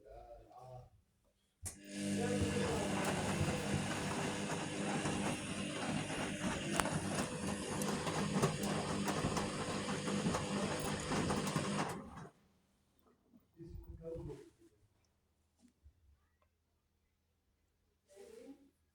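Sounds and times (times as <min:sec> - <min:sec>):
washing machine drum humming: 0:01.7 - 0:12.3.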